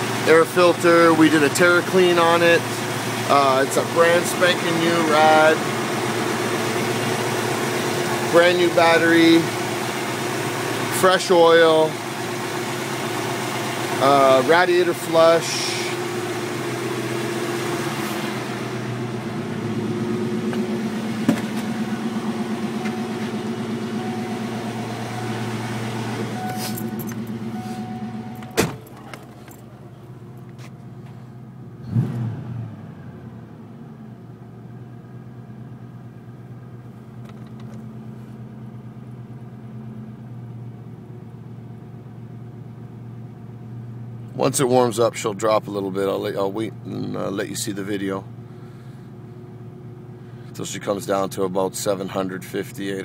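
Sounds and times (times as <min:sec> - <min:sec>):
car engine idling: 0:00.0 - 0:32.1, 0:32.7 - 0:53.0
thump: 0:21.2 - 0:21.7, 0:28.5 - 0:28.9.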